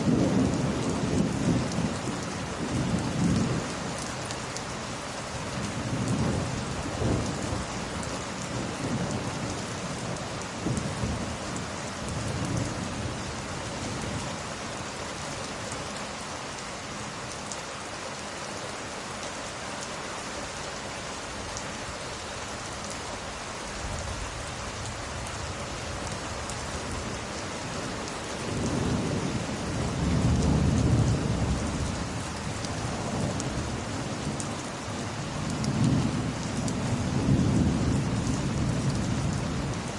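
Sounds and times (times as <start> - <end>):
heavy rain: 0.0 - 39.9
thunder rumbling: 28.4 - 34.4, 35.4 - 39.9.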